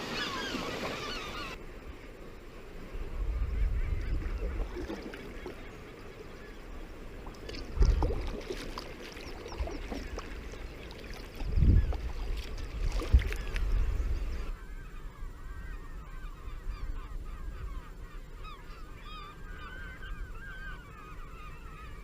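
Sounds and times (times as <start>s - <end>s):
wind buffeting microphone: 2.8s - 5.1s, 6.9s - 14.6s
water splashing around kayak: 4.0s - 14.5s.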